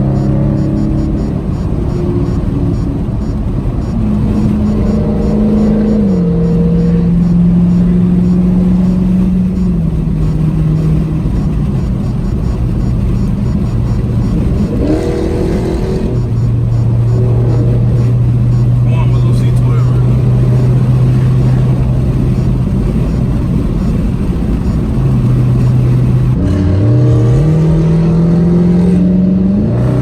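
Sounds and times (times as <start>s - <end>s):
car engine running: 0.0s - 30.0s.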